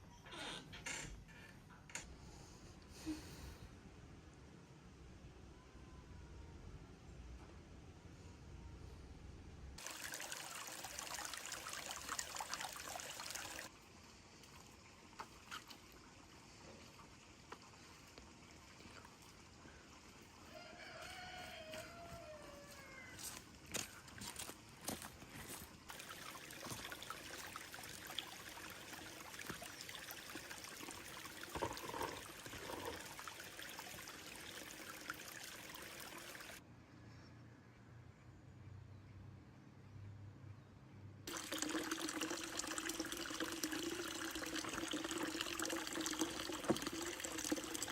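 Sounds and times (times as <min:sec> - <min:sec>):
water trickling and splashing: 0:09.8 - 0:21.9, 0:23.2 - 0:36.6, 0:41.3 - 0:47.9.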